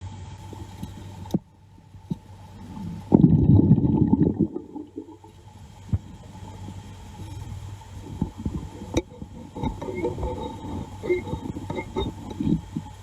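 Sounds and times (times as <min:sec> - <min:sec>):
low underwater hum: 0:00.0 - 0:13.0
gurgle of bubbles: 0:02.6 - 0:13.0.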